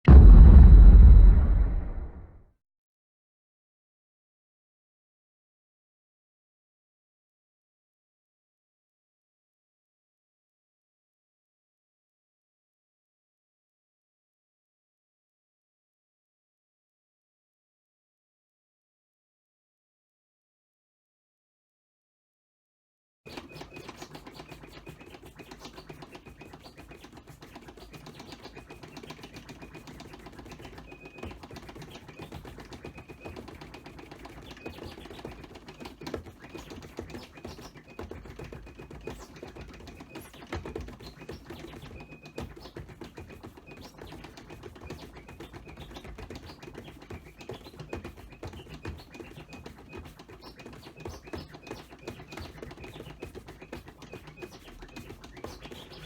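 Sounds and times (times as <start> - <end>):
faint low rumble: 0.1 - 2.4
turntable scratching clicks: 23.3 - 56.0.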